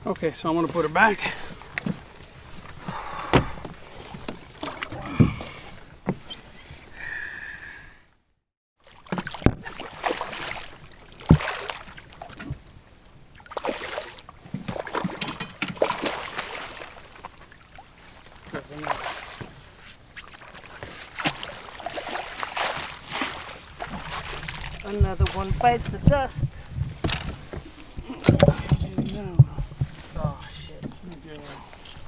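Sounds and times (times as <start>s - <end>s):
knocks on a boat: 3.3s - 4.4s, 28.2s - 30.4s.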